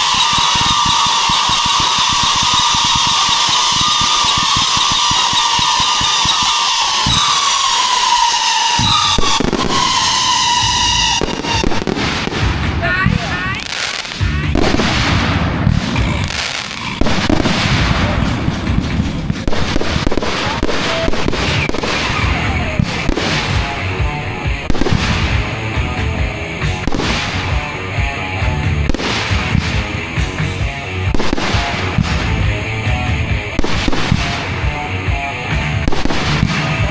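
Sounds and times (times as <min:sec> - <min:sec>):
fireworks bangs and crackle: 0:00.0 - 0:36.9
music: 0:00.0 - 0:36.9.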